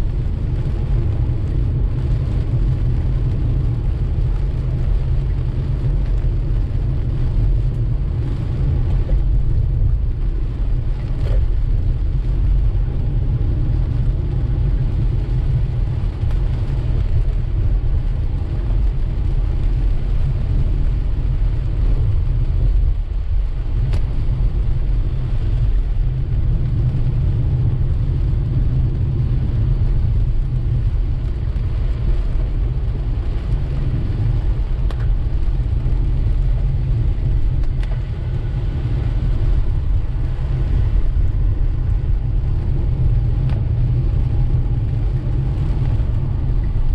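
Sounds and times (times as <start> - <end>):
car driving on wet road: 0.0 - 46.9
rain and wet tyres hissing: 0.0 - 46.9.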